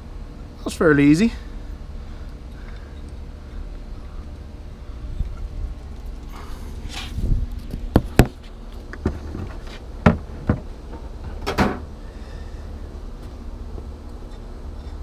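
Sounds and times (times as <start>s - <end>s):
low background hum: 0.0s - 15.0s
scraping rustles: 5.3s - 9.9s.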